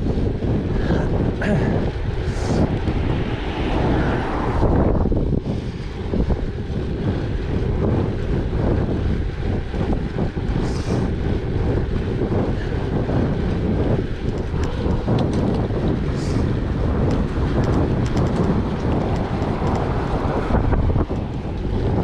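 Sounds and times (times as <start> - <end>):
bicycle tyres rolling: 0.0 - 22.0
wind buffeting microphone: 0.0 - 22.0.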